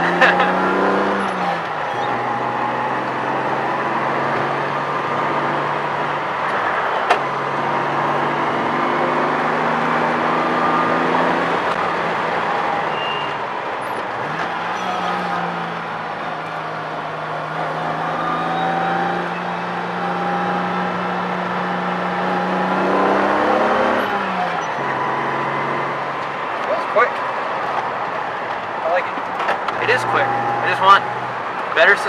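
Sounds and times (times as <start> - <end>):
car engine pulling uphill: 0.0 - 32.0.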